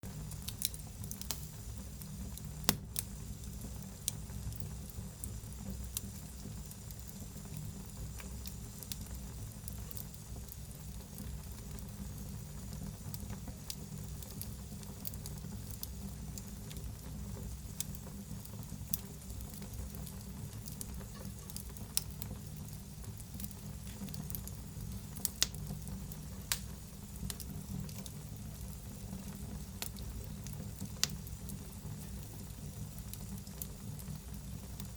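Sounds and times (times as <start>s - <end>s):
wood fire crackling: 0.0s - 34.9s
sharp pops of fire: 0.3s - 4.7s, 25.2s - 28.1s, 29.8s - 32.2s.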